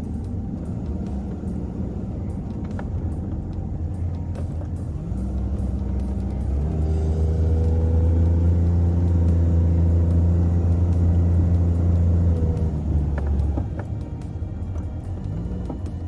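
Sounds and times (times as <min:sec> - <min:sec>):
car engine droning: 0:00.0 - 0:16.0.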